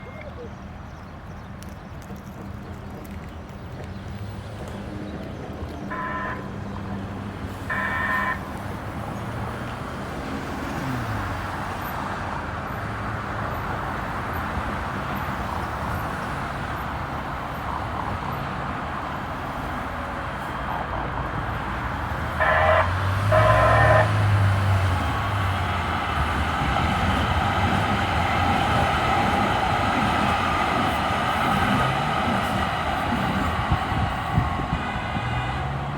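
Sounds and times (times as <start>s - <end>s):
light rail train running: 0.0s - 35.9s
street traffic: 0.0s - 35.9s
train horn blasts: 5.9s - 6.6s, 7.7s - 8.6s, 22.4s - 24.6s.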